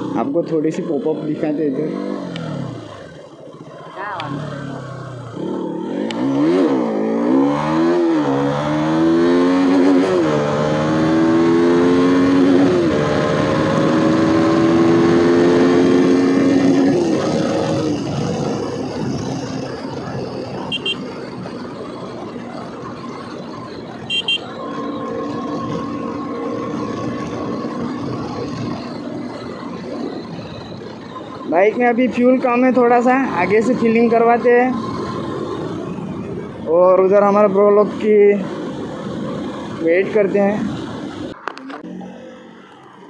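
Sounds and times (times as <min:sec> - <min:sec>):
motorcycle engine accelerating: 0:00.0 - 0:43.0
high double beeps: 0:20.7 - 0:21.0.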